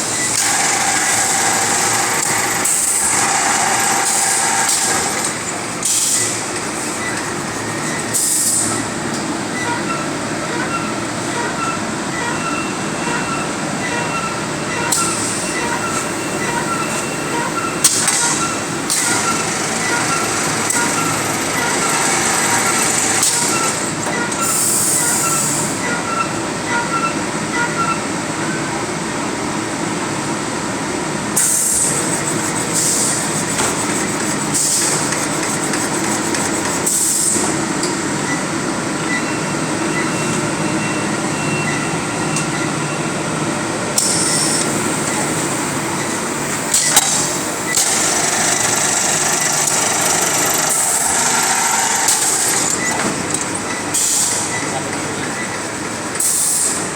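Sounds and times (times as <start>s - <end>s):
bagging machine rumble and clatter: 0.0s - 9.3s, 31.3s - 37.8s, 44.0s - 56.7s
short high hiss bursts: 31.4s - 37.4s.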